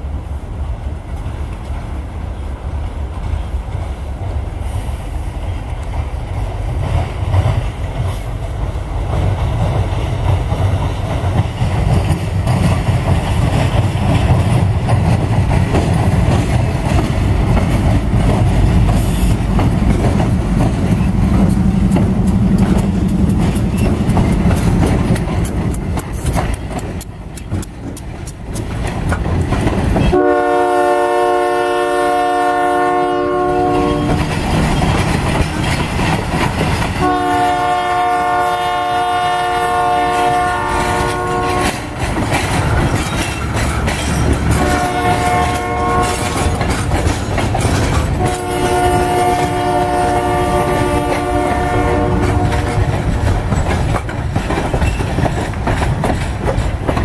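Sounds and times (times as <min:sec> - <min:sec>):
diesel locomotives rumbling: 0:00.0 - 0:57.0
freight cars clattering on rails: 0:05.9 - 0:30.2, 0:33.7 - 0:37.8, 0:40.1 - 0:57.0
locomotive air horn: 0:30.1 - 0:34.3, 0:37.0 - 0:42.0, 0:44.5 - 0:46.4, 0:48.2 - 0:52.8.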